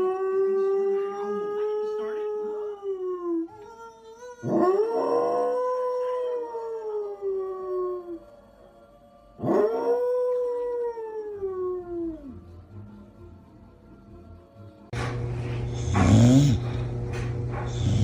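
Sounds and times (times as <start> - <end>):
dog howling: 0.0 - 8.3, 9.4 - 12.4.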